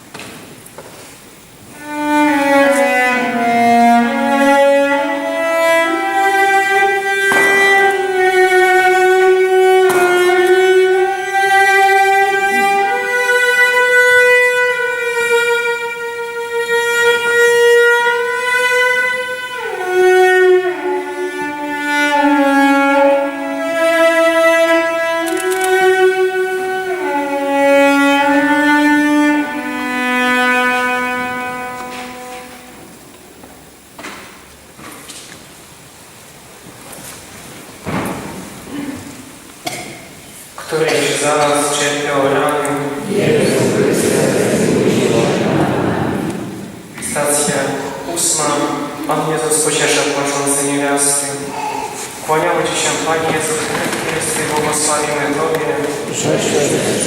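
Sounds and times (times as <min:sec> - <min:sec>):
bowed string melody with vibrato: 0:01.8 - 0:32.5.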